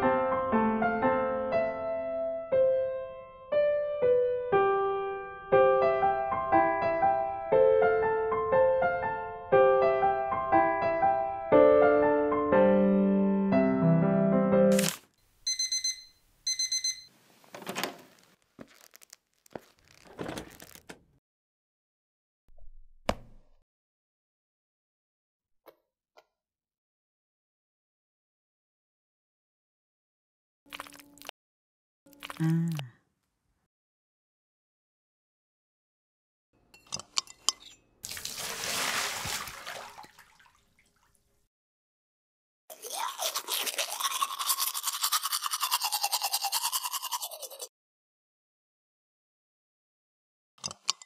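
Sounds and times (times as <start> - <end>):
alarm clock beeping: 15.5 - 17.1
toothbrush clicking in cup: 44.0 - 47.7.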